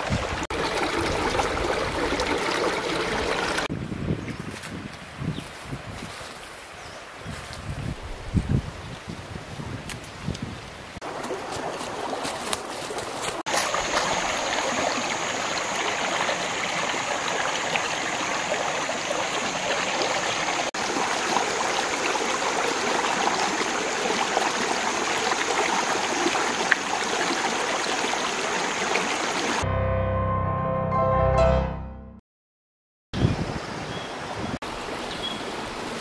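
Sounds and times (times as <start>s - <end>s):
water running: 0.5s - 3.7s, 11.0s - 29.6s.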